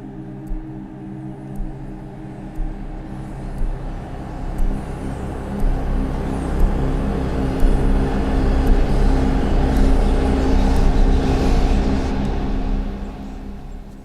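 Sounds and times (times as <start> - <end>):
faint high ticks: 0.2 - 11.1.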